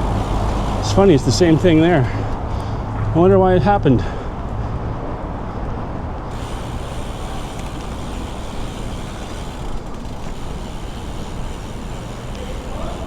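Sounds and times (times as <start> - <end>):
bicycle parts rattling: 0.0 - 2.4, 6.3 - 13.0
bicycle tyres rolling: 0.0 - 2.7, 5.5 - 13.0.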